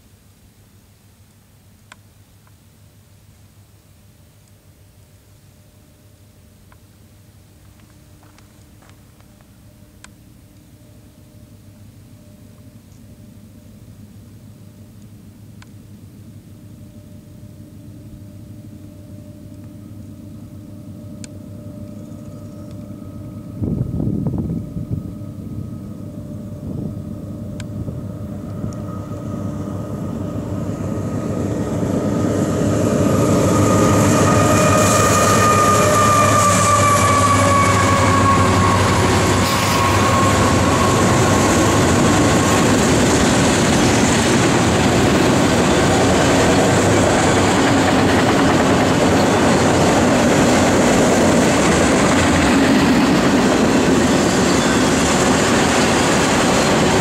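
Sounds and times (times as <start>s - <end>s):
diesel locomotives passing: 5.8s - 57.0s
high tone sliding down: 16.1s - 57.0s
rail cars rumbling and clattering: 21.2s - 57.0s.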